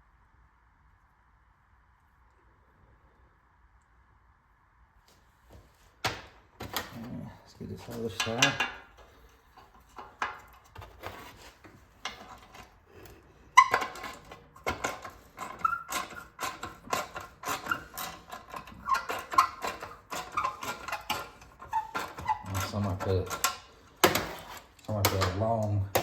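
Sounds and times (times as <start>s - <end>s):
short metallic squeaks: 13.5s - 24.8s.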